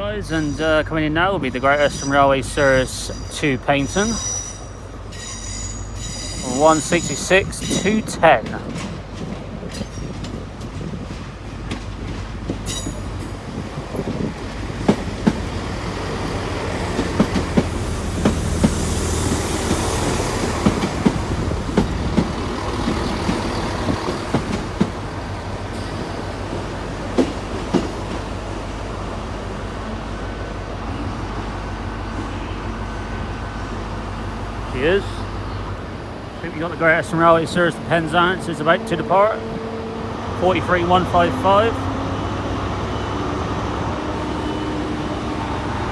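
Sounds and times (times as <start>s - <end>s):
train diesel engines humming: 0.0s - 45.9s
train wheels clicking over rail joints: 5.1s - 29.1s.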